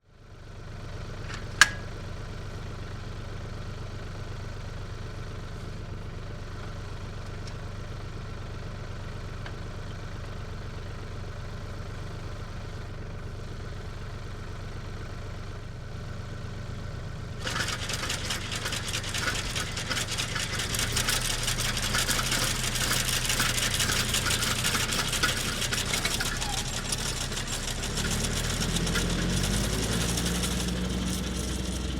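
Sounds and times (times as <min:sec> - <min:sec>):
engine droning: 0:00.4 - 0:31.9
sharp click: 0:01.3 - 0:01.9
loud rattling clatter: 0:17.4 - 0:31.9.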